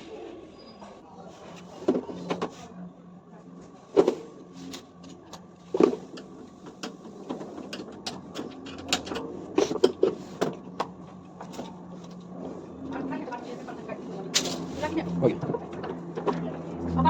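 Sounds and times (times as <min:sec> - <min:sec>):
tools and parts clicking and knocking: 0:05.0 - 0:11.7.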